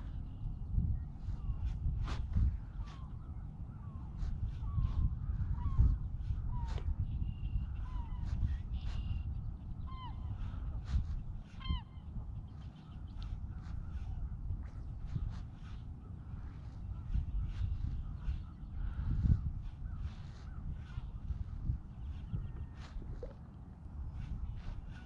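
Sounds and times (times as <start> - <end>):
wind rumble on microphone: 0.0 - 25.0
birds calling: 1.2 - 25.0.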